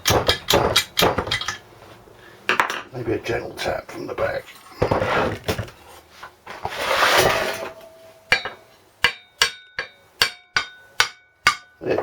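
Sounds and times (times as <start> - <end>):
metal tools clattering: 0.0 - 1.7, 6.8 - 8.7.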